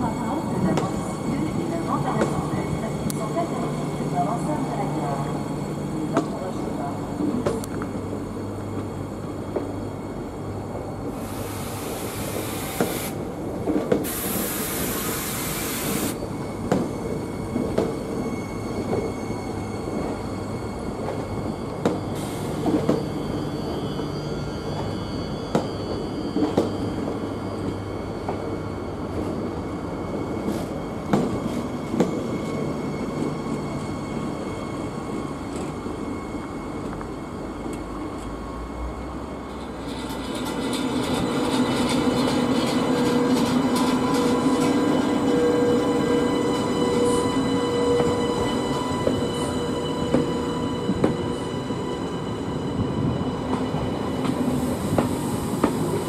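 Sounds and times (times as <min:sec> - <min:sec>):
high-speed train deep rumble: 0:00.0 - 0:56.0
passenger train rumbling: 0:00.0 - 0:56.0
faint high wheel squeal: 0:14.8 - 0:56.0.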